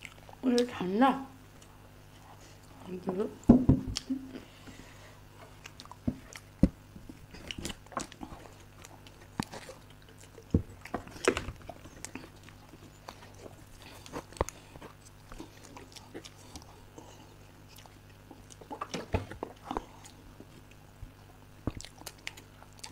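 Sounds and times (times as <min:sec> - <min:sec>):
people chewing cake: 0:00.0 - 0:03.0, 0:03.9 - 0:22.9.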